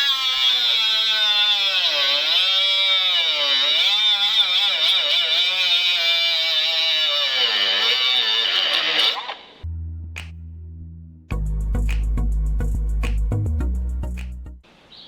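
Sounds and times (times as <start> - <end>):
power grinder motor whine: 0.0 - 9.6.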